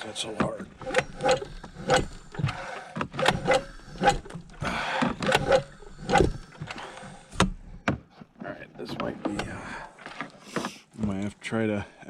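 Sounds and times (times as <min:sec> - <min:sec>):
recoil pull-starter yanked: 0:00.0 - 0:08.0
engine turning over: 0:00.1 - 0:07.8.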